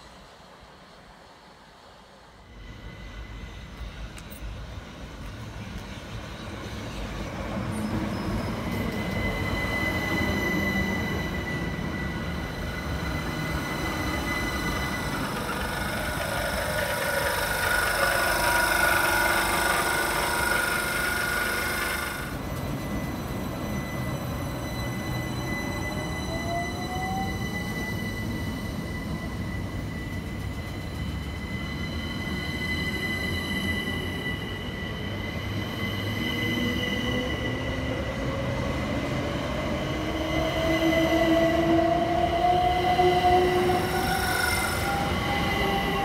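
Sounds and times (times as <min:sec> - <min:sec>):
train wheels on rail: 0:00.0 - 0:46.0
high squealing tones: 0:08.9 - 0:22.4
rising whine: 0:11.6 - 0:22.8.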